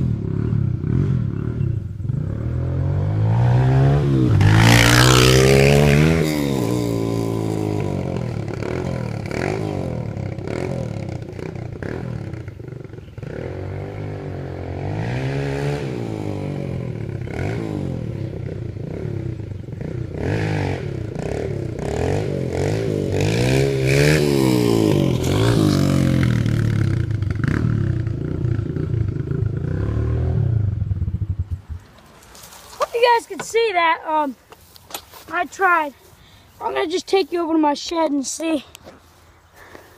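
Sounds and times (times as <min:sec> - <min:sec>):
dirt bike engine revving: 0:00.0 - 0:31.8.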